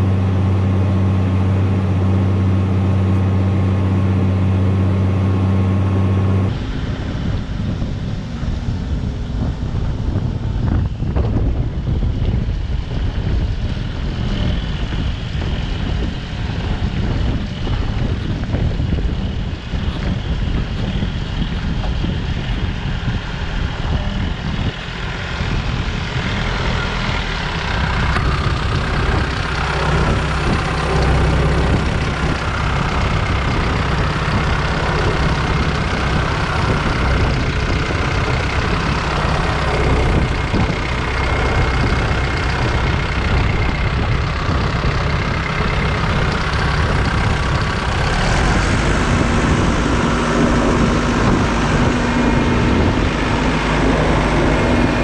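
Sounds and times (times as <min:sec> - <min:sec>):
steady humming tone: 0:00.0 - 0:55.0
tractor diesel engine droning: 0:00.0 - 0:55.0.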